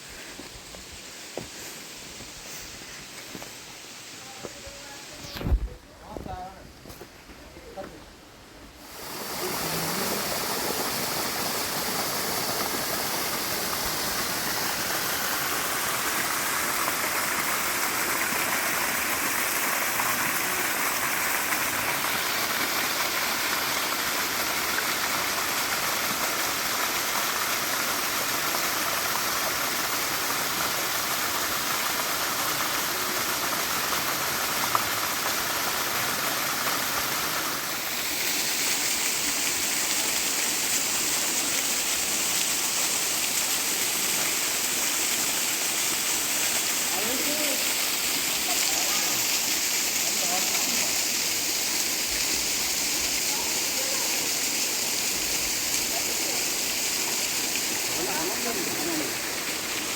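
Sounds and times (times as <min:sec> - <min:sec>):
waterfall rushing: 0:08.8 - 0:59.9.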